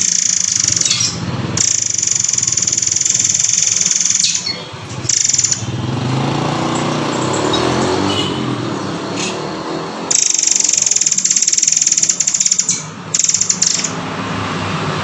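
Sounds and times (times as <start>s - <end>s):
bird jumbled chatter: 0.0s - 14.1s
bird buzzing trill: 10.1s - 14.0s.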